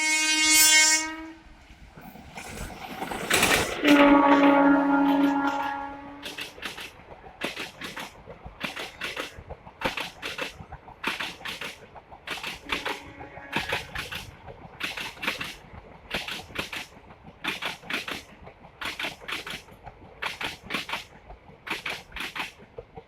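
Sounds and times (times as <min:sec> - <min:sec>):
train wheels clattering over rail joints: 0:02.0 - 0:23.0.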